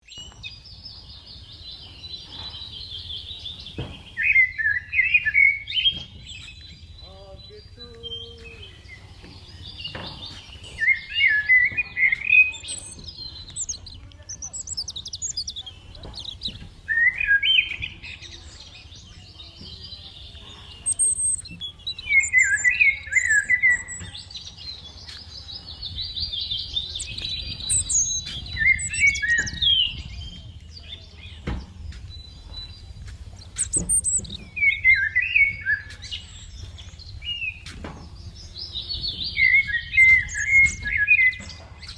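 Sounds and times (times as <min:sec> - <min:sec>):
birds singing: 0:00.0 - 0:41.9
soft knocks: 0:09.1 - 0:10.8.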